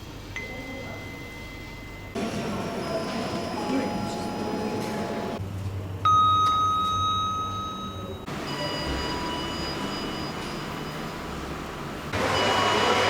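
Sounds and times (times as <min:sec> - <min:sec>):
elevator running noise: 0:00.0 - 0:13.0
elevator chime: 0:00.4 - 0:05.4, 0:06.0 - 0:11.6, 0:12.2 - 0:13.0
lift humming: 0:02.2 - 0:05.4.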